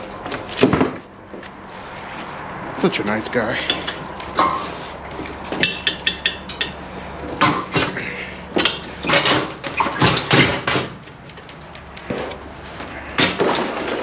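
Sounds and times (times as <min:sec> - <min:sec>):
metallic clanks and knocks: 0:00.2 - 0:01.1, 0:03.7 - 0:12.4.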